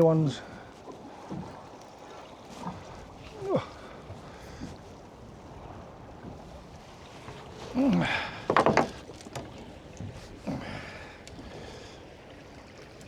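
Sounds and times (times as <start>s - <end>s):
water noise: 0.0s - 13.0s
wind: 0.0s - 13.0s.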